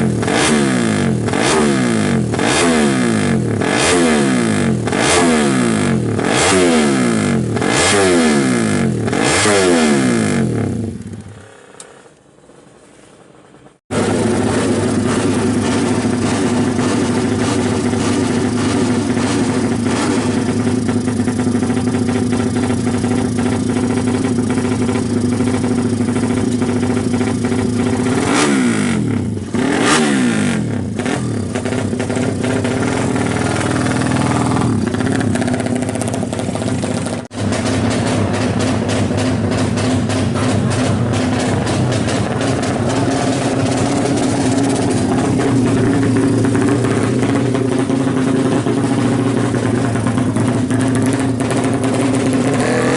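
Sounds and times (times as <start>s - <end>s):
motorcycle engine revving: 0.0s - 12.5s, 13.5s - 52.9s.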